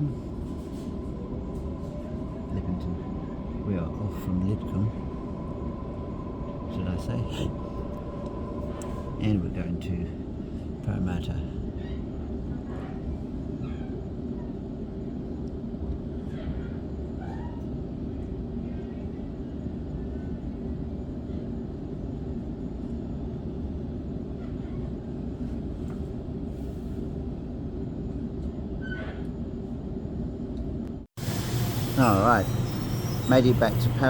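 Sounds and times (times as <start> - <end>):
train wheels rumbling on track: 31.2 - 34.0.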